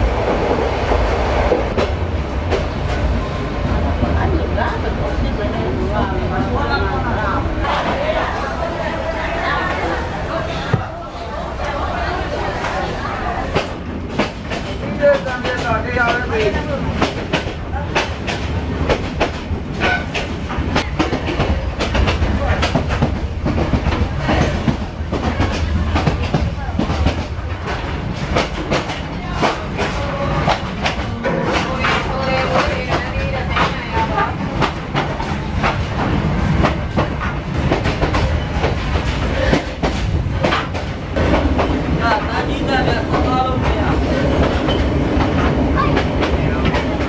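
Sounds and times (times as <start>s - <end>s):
train carriage rumbling on track: 0.0s - 47.0s.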